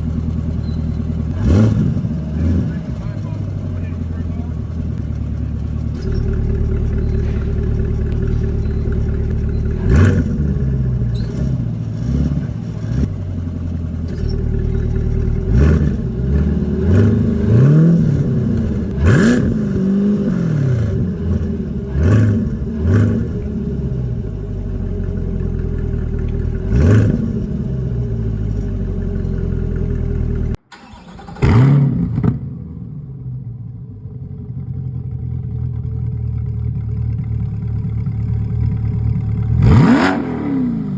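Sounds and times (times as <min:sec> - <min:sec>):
car engine idling with throttle blips: 0:00.0 - 0:31.3, 0:32.2 - 0:40.9
second car revving and idling: 0:00.0 - 0:40.9.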